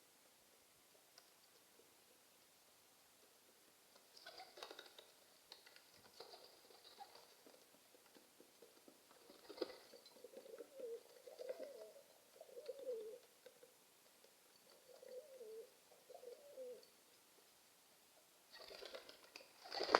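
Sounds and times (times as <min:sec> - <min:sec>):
pigeon cooing: 0:04.2 - 0:05.0, 0:09.3 - 0:13.3, 0:14.7 - 0:16.9.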